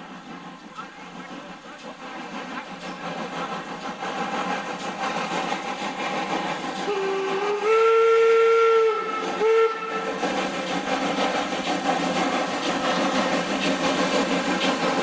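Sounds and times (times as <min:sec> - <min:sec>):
train running noise: 0:00.0 - 0:15.0
locomotive whistle: 0:06.8 - 0:10.2.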